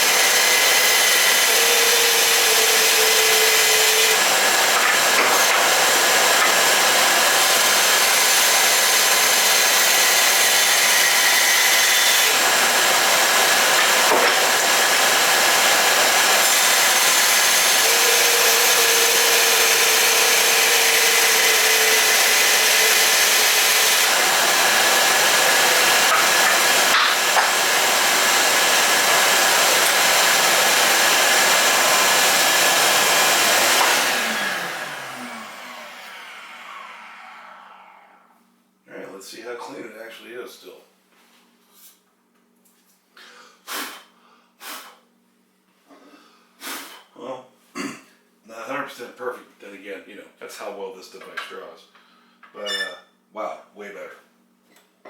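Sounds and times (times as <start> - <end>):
shop vacuum running: 0.0 - 38.5.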